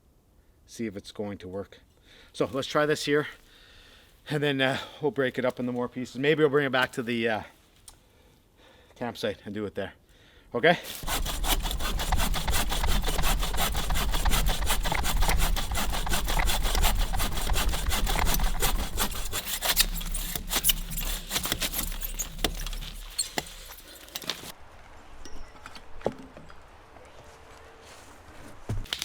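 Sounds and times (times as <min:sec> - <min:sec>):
saw cutting through log: 0:10.9 - 0:24.5.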